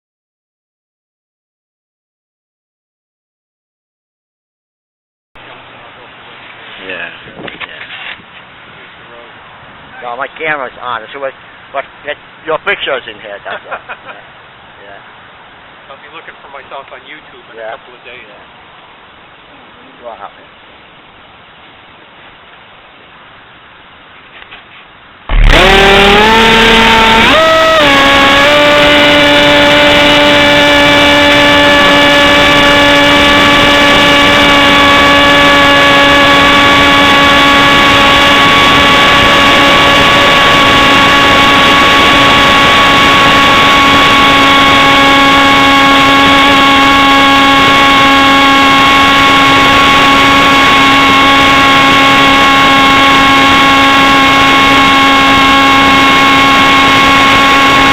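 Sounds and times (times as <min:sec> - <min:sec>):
model jet engine starting and running: 0:25.3 - 0:57.9.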